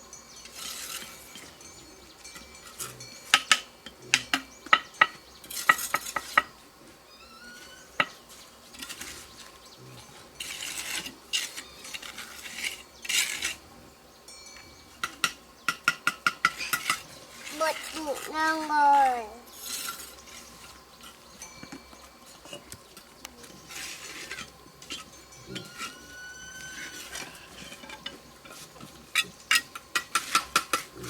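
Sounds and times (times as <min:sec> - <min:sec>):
scraping or rustling: 0:00.4 - 0:01.7, 0:07.5 - 0:13.7, 0:16.5 - 0:31.0.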